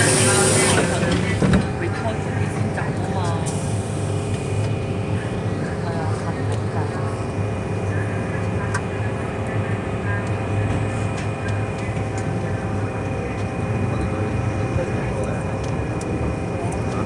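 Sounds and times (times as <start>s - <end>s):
train running with low rumble: 0.0s - 17.0s.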